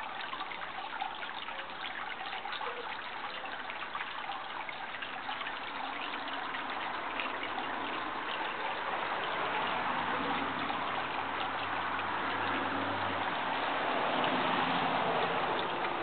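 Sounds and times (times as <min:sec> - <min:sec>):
water trickling: 0:00.0 - 0:16.0.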